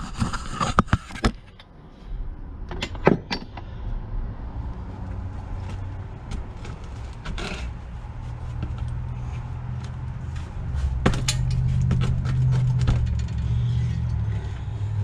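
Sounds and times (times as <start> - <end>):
engine parts clicking and knocking: 2.6 - 4.0, 4.7 - 15.0.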